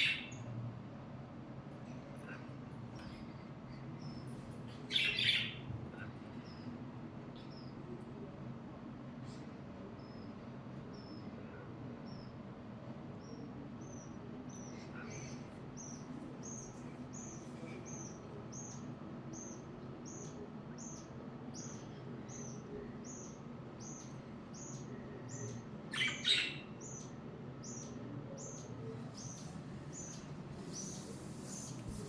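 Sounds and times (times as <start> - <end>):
budgerigar chirping: 4.9 - 5.6, 25.9 - 27.1.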